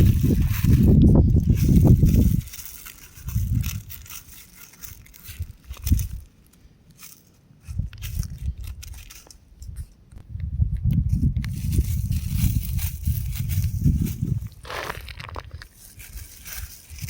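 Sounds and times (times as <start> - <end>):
rock crumbling: 14.2 - 15.7.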